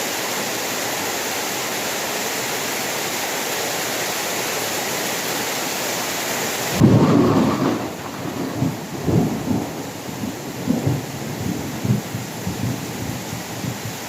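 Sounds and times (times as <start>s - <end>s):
heavy rain hiss: 0.0s - 14.0s
rolling thunder: 6.8s - 14.0s.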